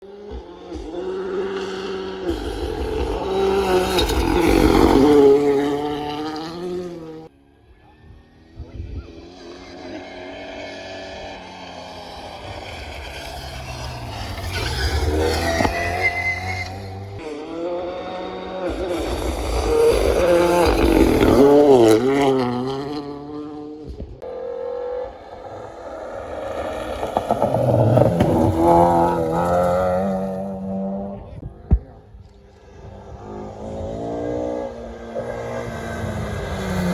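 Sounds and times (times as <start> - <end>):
rally car passing at high revs: 0.0 - 36.9
engine crackling and popping: 0.3 - 7.2, 11.8 - 17.2, 18.6 - 23.1, 26.3 - 30.4.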